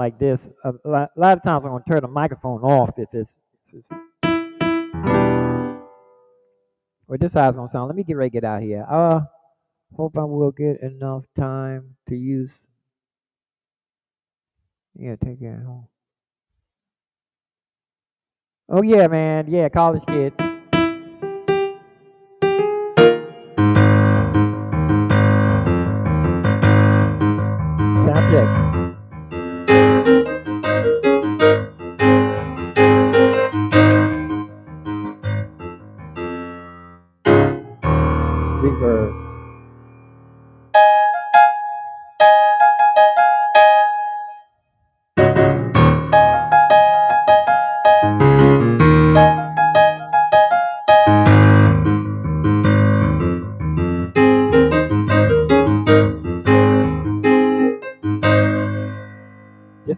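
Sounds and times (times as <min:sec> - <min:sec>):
piano chords and notes: 0:03.8 - 0:06.5, 0:19.8 - 0:44.6, 0:45.2 - 0:59.9.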